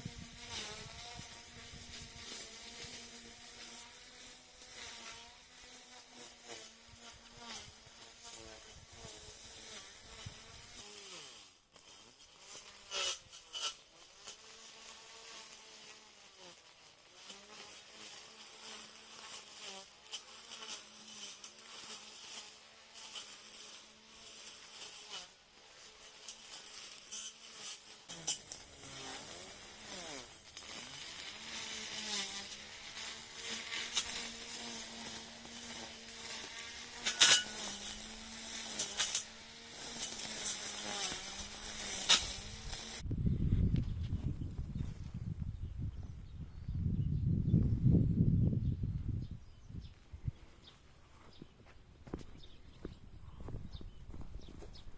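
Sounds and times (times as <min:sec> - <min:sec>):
mower motor buzzing: 0:00.0 - 0:43.0.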